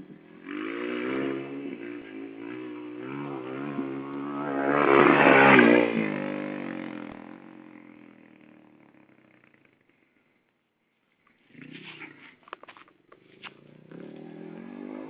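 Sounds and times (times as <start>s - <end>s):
dirt bike engine revving: 0.0s - 9.8s, 13.6s - 15.0s.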